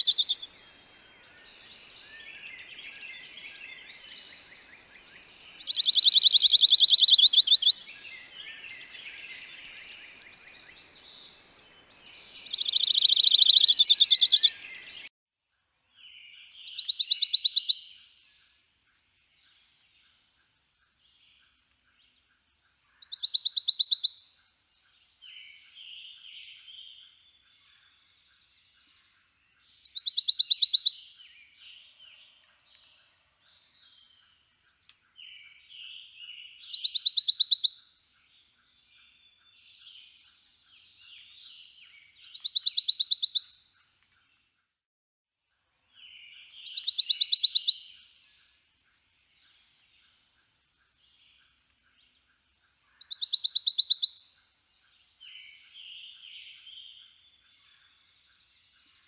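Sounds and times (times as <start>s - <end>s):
bird twittering: 0.0s - 0.6s, 1.3s - 15.1s, 16.6s - 18.0s, 22.9s - 24.4s, 29.7s - 31.3s, 35.2s - 37.9s, 40.8s - 43.7s, 46.0s - 48.0s, 52.9s - 54.4s
songbird trilling: 0.0s - 15.1s, 16.6s - 18.0s, 22.9s - 24.4s, 29.8s - 31.4s, 35.2s - 37.9s, 40.8s - 43.7s, 46.0s - 48.0s, 52.9s - 54.4s.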